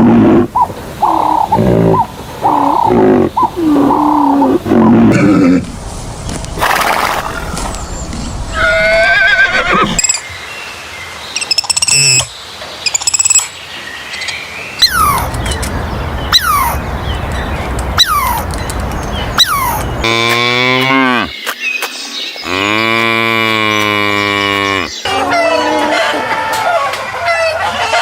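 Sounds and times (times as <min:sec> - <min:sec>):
horse whinny: 0:08.6 - 0:10.0.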